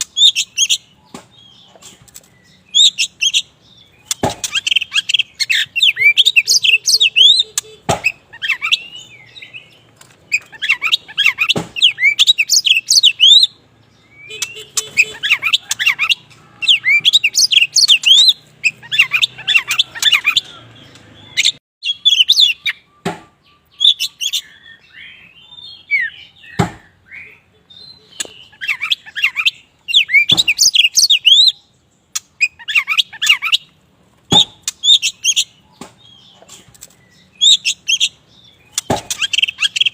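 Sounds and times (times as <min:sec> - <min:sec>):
bird chirping and whistling: 0:00.0 - 0:01.7, 0:02.4 - 0:33.7, 0:34.3 - 0:36.4, 0:37.0 - 0:39.9
sharp knocks: 0:04.1 - 0:04.6, 0:07.8 - 0:08.2, 0:11.5 - 0:11.8, 0:23.0 - 0:23.3, 0:26.6 - 0:26.9, 0:34.3 - 0:34.7, 0:38.8 - 0:39.3.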